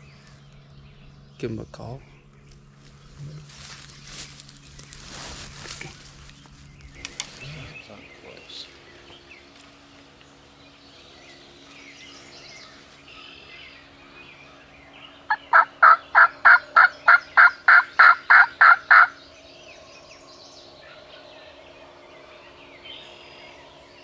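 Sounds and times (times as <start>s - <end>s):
turkey call hen yelps: 15.3s - 19.2s.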